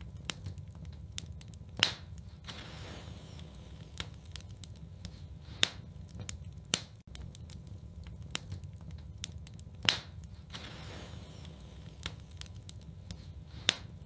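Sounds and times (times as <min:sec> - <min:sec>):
low steady rumble: 0:00.0 - 0:14.0
wood fire crackling and popping: 0:00.0 - 0:14.0.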